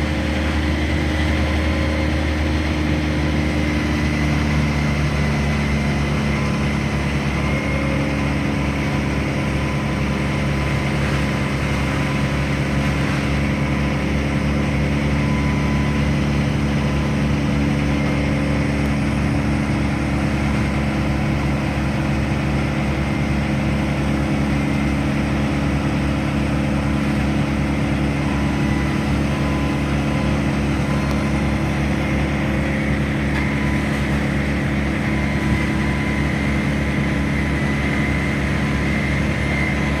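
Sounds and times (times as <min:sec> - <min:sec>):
large engine running steadily: 0:00.0 - 0:40.0.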